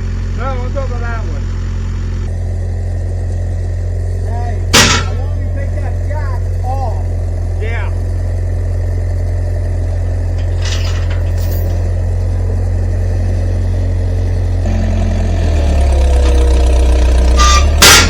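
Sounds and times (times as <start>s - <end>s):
engine idling and revving: 0.0s - 18.0s
faint clinks: 10.4s - 12.0s.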